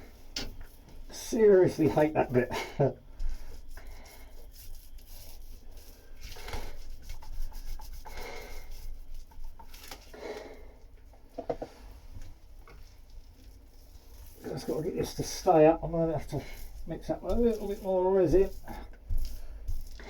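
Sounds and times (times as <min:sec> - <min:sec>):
cloth rubbing against boat deck: 0:13.7 - 0:19.8.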